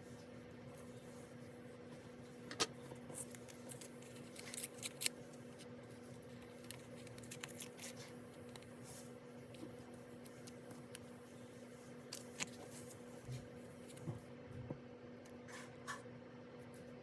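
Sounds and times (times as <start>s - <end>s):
steady low hum: 0.0s - 17.0s
paper and stationery clicks: 6.3s - 8.7s.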